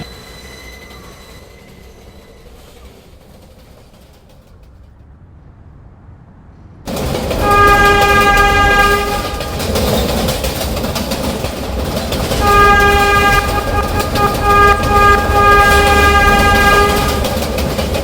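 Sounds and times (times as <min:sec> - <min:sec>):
subway train rail noise: 0:00.0 - 0:18.0
train horn long blast: 0:07.2 - 0:10.1, 0:12.2 - 0:18.0.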